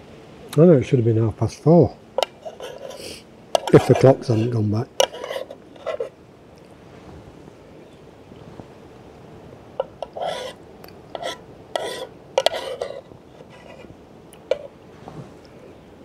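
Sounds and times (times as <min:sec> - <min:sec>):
metal spoon scraping in mess tin: 0:02.2 - 0:06.1, 0:09.8 - 0:13.9.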